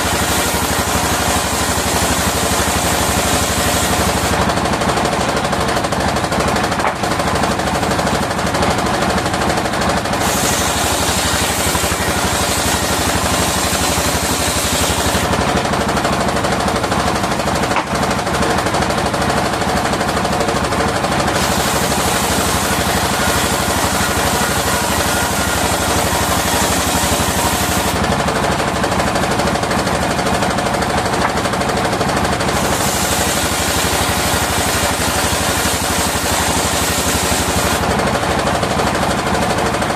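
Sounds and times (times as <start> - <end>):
saw blade cutting wood hiss: 0.0 - 4.3, 10.2 - 15.3, 21.3 - 28.0, 32.6 - 37.9
sawmill engine chugging: 0.0 - 39.9.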